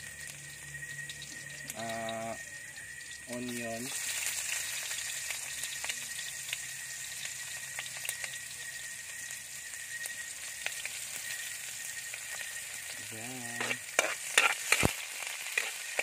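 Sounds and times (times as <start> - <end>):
garlic and onion sizzling in oil: 0.0 - 16.0
sharp crackles: 9.3 - 16.0.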